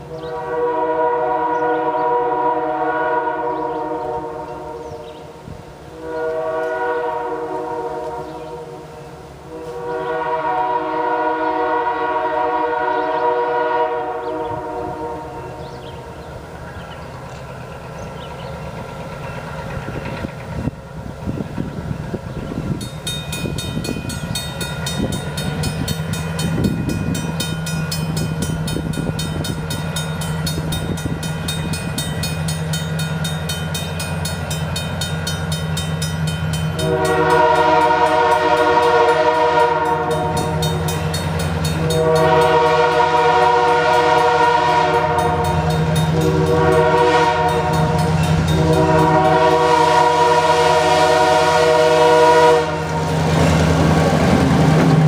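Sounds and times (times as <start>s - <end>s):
locomotive horn blasts: 0.0s - 5.3s, 5.9s - 15.6s, 36.6s - 55.0s
diesel locomotive engine running: 14.4s - 55.0s.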